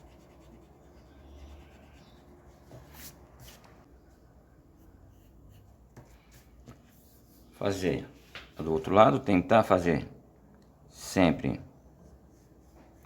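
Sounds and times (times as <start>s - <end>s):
pencil and eraser on paper: 0.0s - 3.7s, 4.8s - 7.5s
low room hum: 0.0s - 13.0s.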